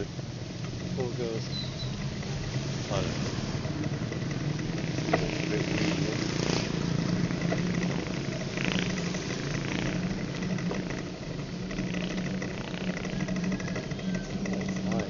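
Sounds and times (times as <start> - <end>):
motorcycle engines running: 0.0 - 15.0.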